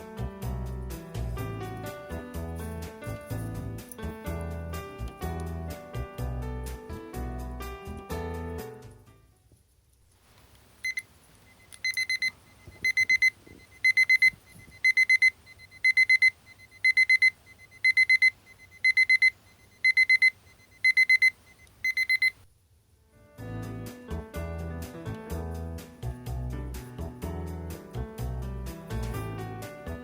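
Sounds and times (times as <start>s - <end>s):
fishing bite alarm beeping: 10.8s - 22.4s.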